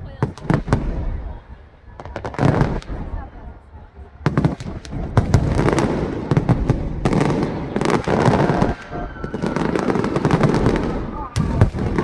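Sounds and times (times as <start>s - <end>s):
fireworks bangs and crackling: 0.0s - 12.0s.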